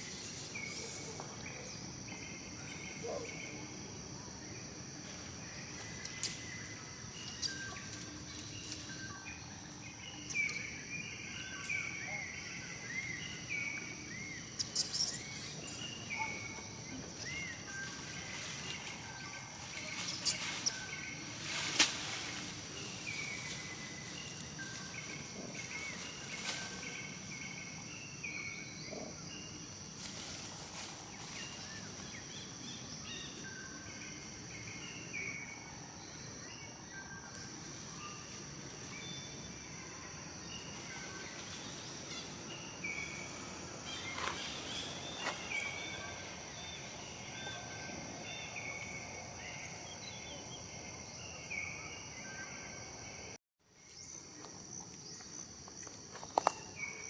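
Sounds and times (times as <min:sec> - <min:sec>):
short chirping calls: 0:14.6 - 0:16.6.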